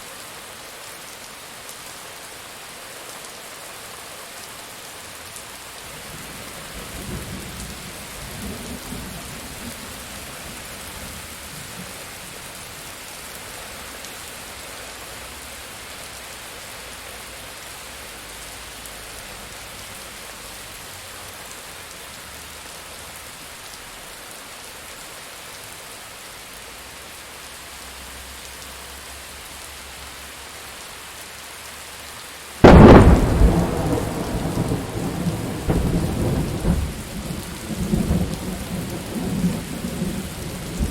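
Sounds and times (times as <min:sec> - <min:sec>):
steady rain: 0:00.0 - 0:40.9
loud thunderclap: 0:32.6 - 0:40.1
thunder rumbling: 0:32.6 - 0:40.9.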